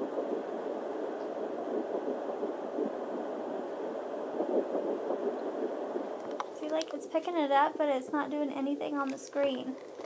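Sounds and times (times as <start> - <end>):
fast pulsing heartbeat: 0.0 - 6.2
doppler static: 0.0 - 10.0.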